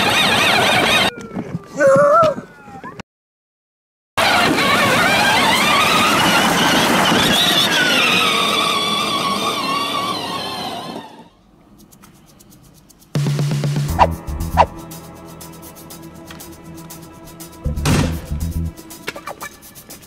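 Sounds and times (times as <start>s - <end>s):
vehicle engine revving: 13.2s - 14.8s.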